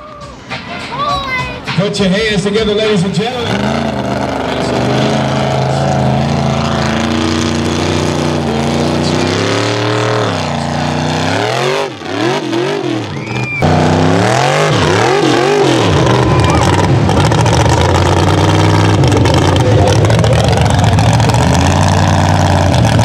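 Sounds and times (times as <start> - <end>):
truck engine revving: 1.7 - 23.0.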